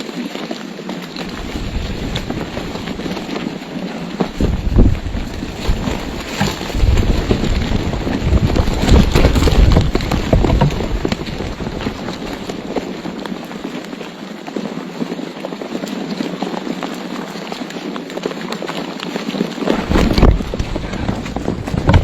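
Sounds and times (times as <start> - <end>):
wind buffeting microphone: 1.0 - 14.0, 19.4 - 22.0.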